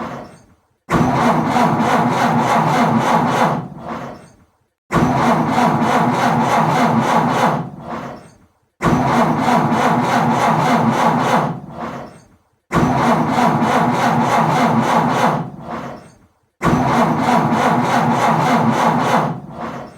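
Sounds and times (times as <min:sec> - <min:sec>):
car engine cranking without starting: 0:12.8 - 0:19.9.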